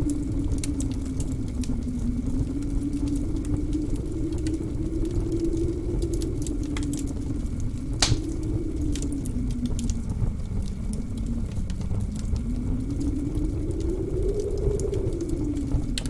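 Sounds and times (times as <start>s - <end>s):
blizzard wind howling: 0.0s - 16.0s
wood fire crackling: 0.0s - 16.0s.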